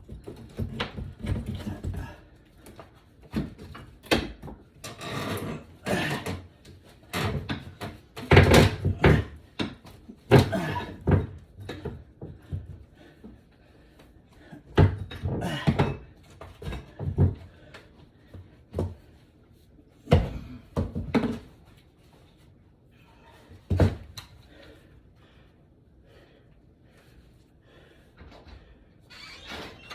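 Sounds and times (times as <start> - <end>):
flooring being pried and broken: 0.0 - 12.8, 14.7 - 17.5, 20.1 - 21.5.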